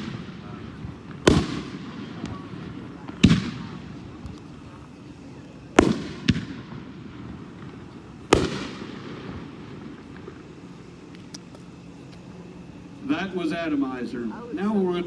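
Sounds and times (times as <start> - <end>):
fireworks booms with echo: 0.0 - 4.4, 5.7 - 10.5.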